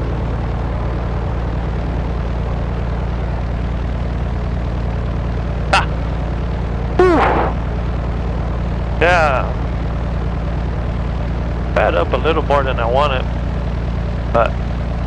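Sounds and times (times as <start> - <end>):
propeller plane engine droning: 0.0 - 15.0
sharp blip: 7.0 - 7.6.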